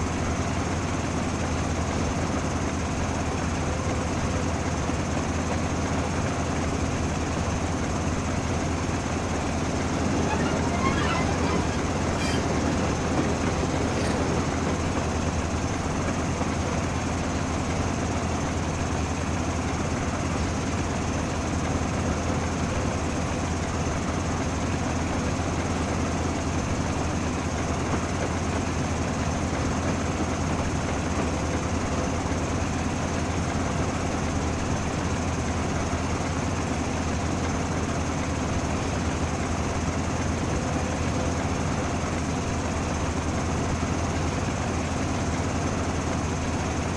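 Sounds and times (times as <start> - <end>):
train rumble and hum: 8.6 - 17.0.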